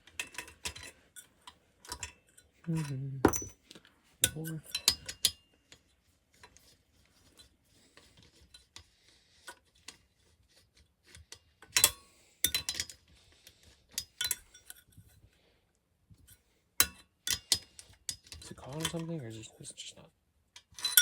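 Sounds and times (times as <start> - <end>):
hand tools clinking on metal: 0.2 - 3.6, 4.2 - 5.4, 20.7 - 21.0.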